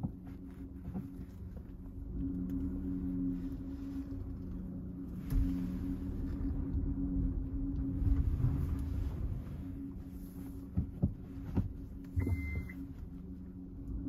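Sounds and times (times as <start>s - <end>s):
car engine idling: 0.0s - 14.0s
short high beep: 12.2s - 12.8s.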